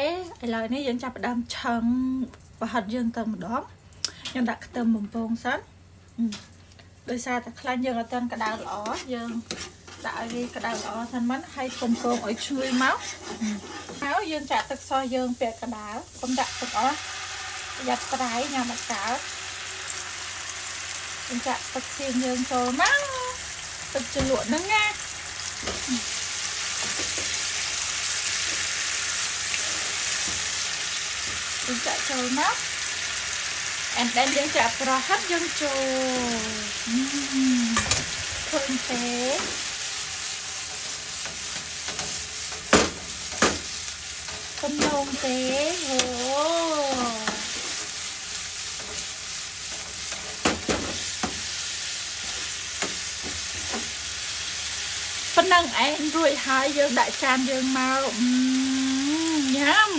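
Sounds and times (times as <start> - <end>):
garlic sizzling in hot oil: 0.0 - 59.9
metal spoon stirring in pan: 8.3 - 14.6, 37.8 - 54.0.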